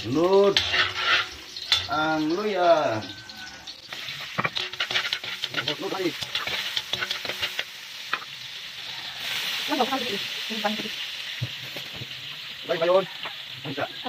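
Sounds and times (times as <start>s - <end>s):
metal utensil scraping pan: 0.0s - 12.4s
onion sizzling in oil: 0.0s - 14.0s.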